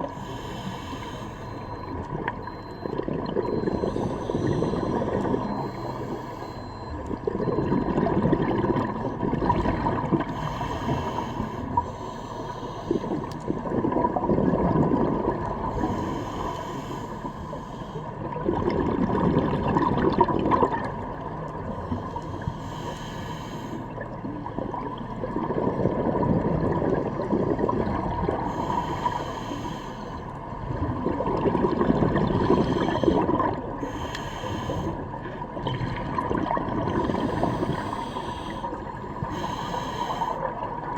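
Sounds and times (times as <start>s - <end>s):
regulator inhale hiss: 0.0s - 1.8s, 3.8s - 6.6s, 10.3s - 13.4s, 15.7s - 18.1s, 21.9s - 24.0s, 28.4s - 30.3s, 32.6s - 35.1s, 37.0s - 40.6s
exhaled bubbles gushing: 1.8s - 10.5s, 13.1s - 16.0s, 18.2s - 22.0s, 23.9s - 29.2s, 30.4s - 33.9s, 35.2s - 39.3s.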